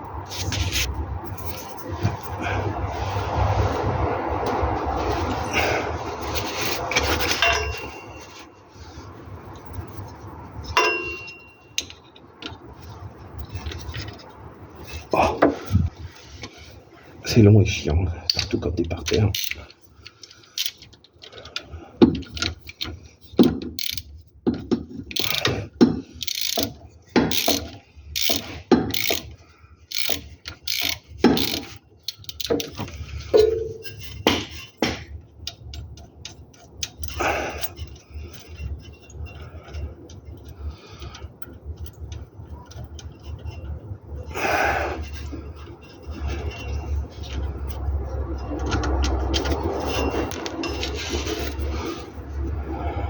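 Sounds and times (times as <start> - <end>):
metal tools knocking: 7.0 - 8.3, 10.7 - 12.3, 22.0 - 29.3, 29.9 - 40.5
ratchet wrench clicking: 19.3 - 19.6, 20.2 - 20.9, 23.8 - 24.1, 25.1 - 25.6, 26.2 - 33.0.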